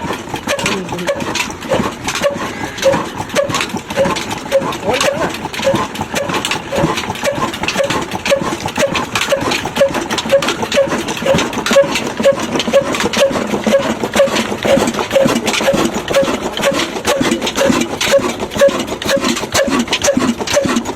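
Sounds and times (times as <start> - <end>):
diesel engine idling: 0.0 - 20.6.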